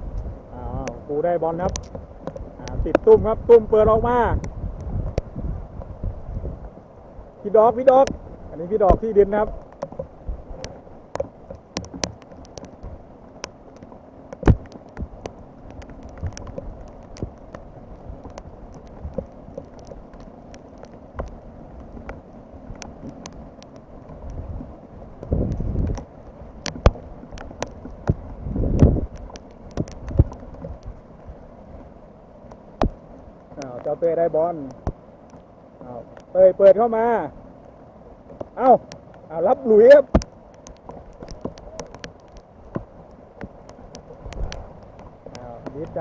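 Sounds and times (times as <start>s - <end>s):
wind gusting on microphone: 0.0s - 35.2s
rain hiss: 0.0s - 46.0s
raindrops tapping: 0.0s - 46.0s.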